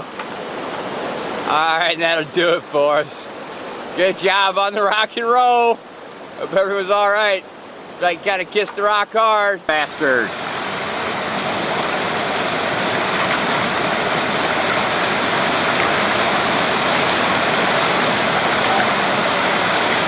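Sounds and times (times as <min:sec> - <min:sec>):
river rapids roaring: 0:00.0 - 0:20.0.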